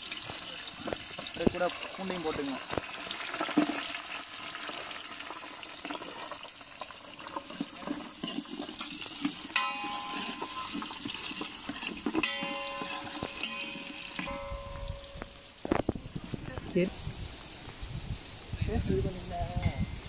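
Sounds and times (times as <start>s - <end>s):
vegetables sizzling in hot oil: 0.0s - 20.0s
metal ladle scraping a pot: 5.8s - 15.4s.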